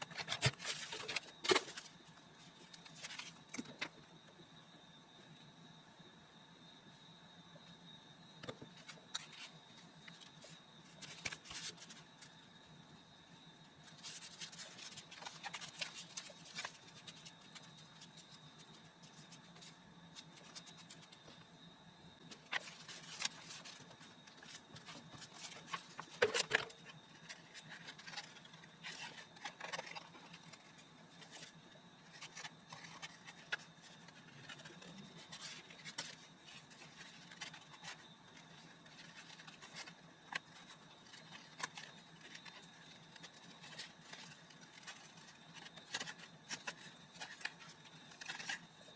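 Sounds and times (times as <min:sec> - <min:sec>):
faint steady hum: 0:00.0 - 0:48.9
paper scrapes and rustles: 0:02.7 - 0:03.6, 0:13.9 - 0:21.1, 0:22.4 - 0:31.5, 0:32.1 - 0:48.9.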